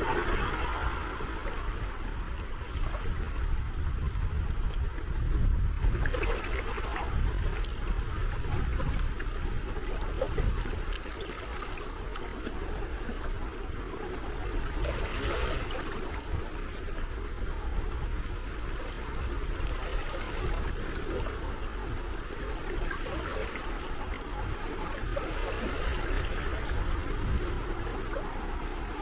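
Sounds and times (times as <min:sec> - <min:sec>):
low rumble: 0:00.0 - 0:06.0
small waves lapping: 0:00.0 - 0:29.0.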